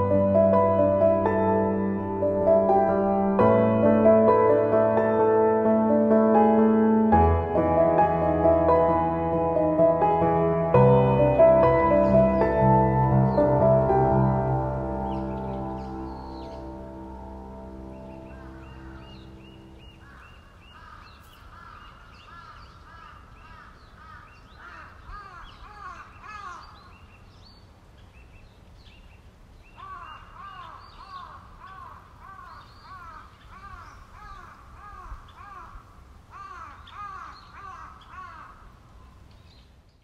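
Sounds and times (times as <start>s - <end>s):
chorus of birds calling: 10.9s - 27.0s, 29.8s - 35.8s, 36.4s - 38.7s
high bird chirps: 14.9s - 22.0s.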